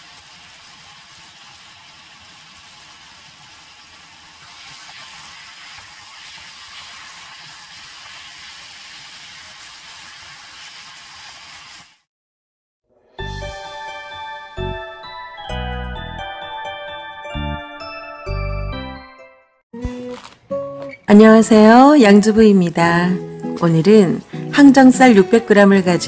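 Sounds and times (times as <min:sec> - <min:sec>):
food sizzling in a pan: 0:00.0 - 0:12.1.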